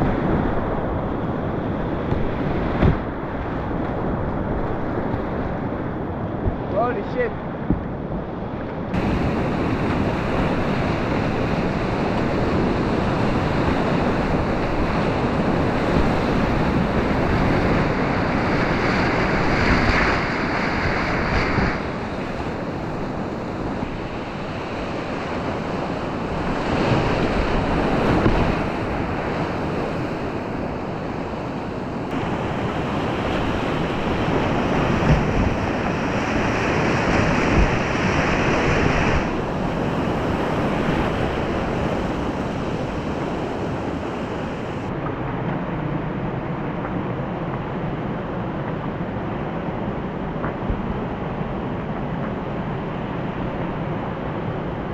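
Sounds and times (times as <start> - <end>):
river rapids rushing: 8.9 - 44.9.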